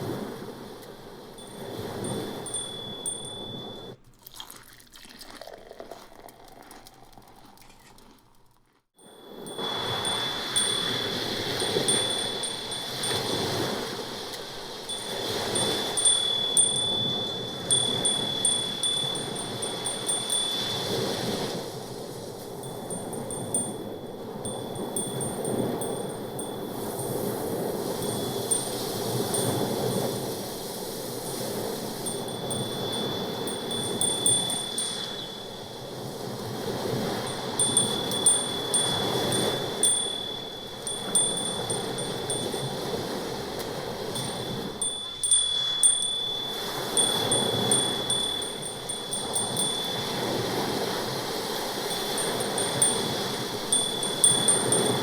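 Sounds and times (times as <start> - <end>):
tinkling chime notes: 1.4 - 4.0, 9.0 - 55.0
steady high tone: 32.1 - 35.9, 37.3 - 42.8, 44.1 - 50.4.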